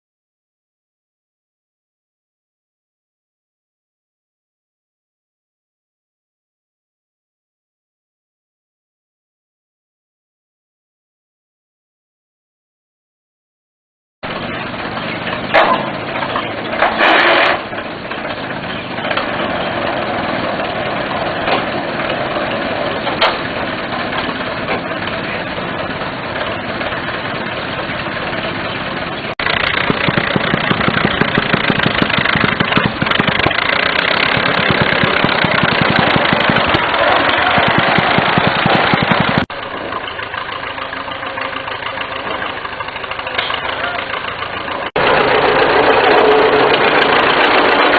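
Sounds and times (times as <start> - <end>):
rail tractor engine running: 14.2 - 47.9.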